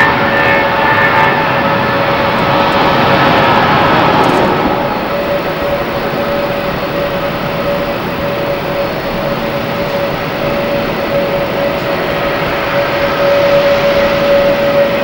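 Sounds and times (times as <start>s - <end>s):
jet engine rushing: 0.0s - 15.0s
jet engine whine: 0.0s - 15.0s.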